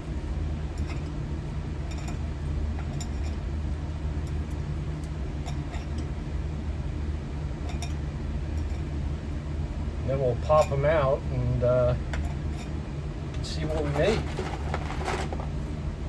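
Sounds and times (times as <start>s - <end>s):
furnace humming: 0.0s - 16.0s.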